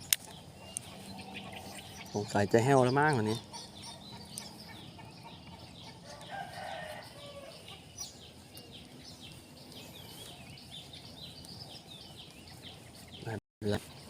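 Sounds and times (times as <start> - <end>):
small birds chirping: 0.0 - 14.0
rooster crowing: 5.9 - 7.7.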